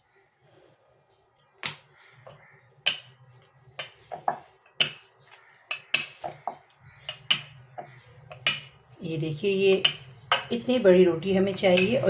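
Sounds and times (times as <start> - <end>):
rolling pin knocking on board: 3.8 - 5.1, 5.7 - 8.8, 9.7 - 10.5.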